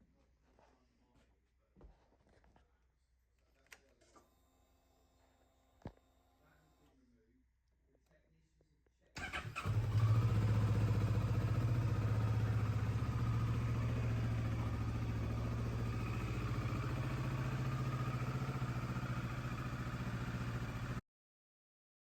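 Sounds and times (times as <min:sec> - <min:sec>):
motorcycle engine idling: 0:09.2 - 0:21.0.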